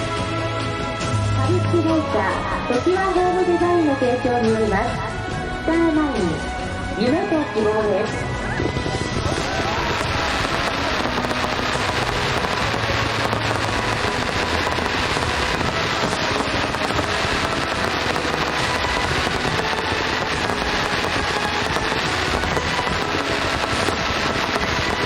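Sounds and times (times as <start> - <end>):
fireworks barrage: 8.1 - 25.0.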